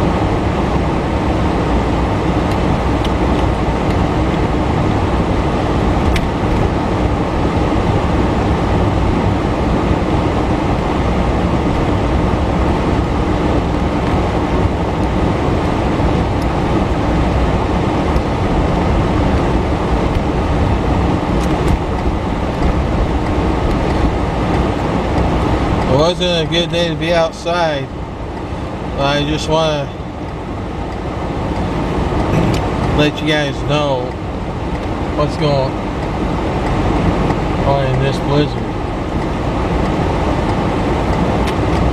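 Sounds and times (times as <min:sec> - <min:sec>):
car engine rumble: 0:00.0 - 0:41.9
tyres on road: 0:00.0 - 0:41.9.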